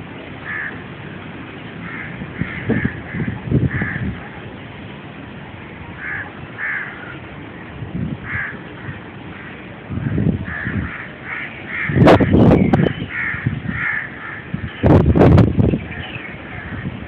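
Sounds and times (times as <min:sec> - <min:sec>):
wind buffeting microphone: 0:00.0 - 0:17.0
crows cawing: 0:00.4 - 0:00.8, 0:01.8 - 0:04.1, 0:06.0 - 0:07.2, 0:08.2 - 0:09.6, 0:10.5 - 0:12.3, 0:13.1 - 0:14.7.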